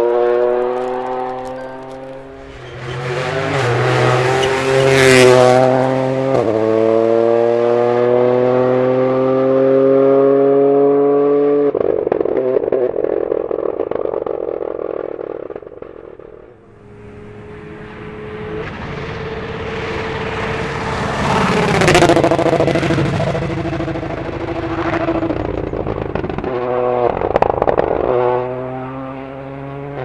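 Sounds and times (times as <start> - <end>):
rally car accelerating past: 0.0 - 12.7, 16.6 - 30.0
car engine pops: 11.8 - 28.5.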